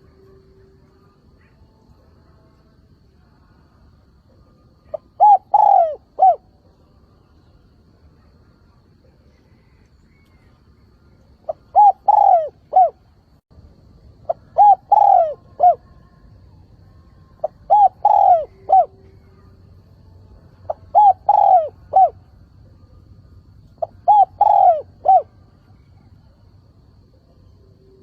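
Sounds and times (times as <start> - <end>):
dove cooing: 4.8 - 6.6, 11.5 - 13.0, 14.3 - 16.0, 17.4 - 19.4, 20.7 - 22.2, 23.8 - 26.1.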